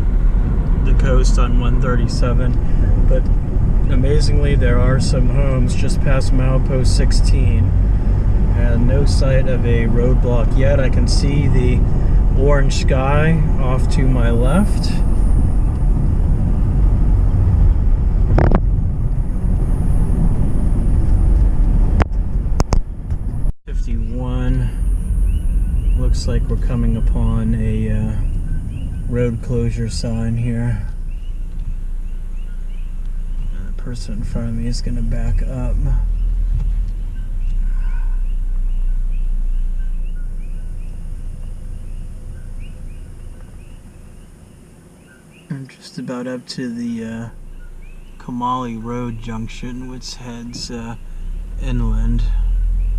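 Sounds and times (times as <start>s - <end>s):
car tyres and engine rumbling: 0.0s - 52.9s
animals chirping: 37.0s - 46.1s, 46.8s - 49.7s.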